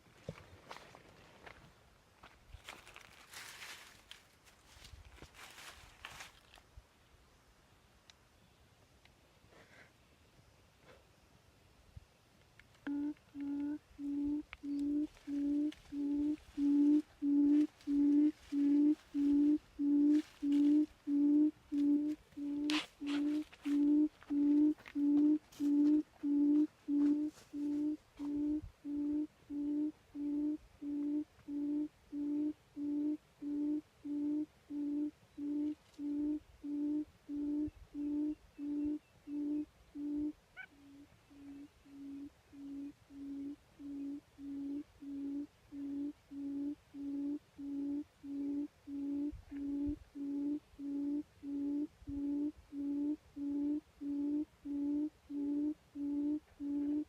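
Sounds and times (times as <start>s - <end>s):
quail hooting: 12.8s - 57.0s.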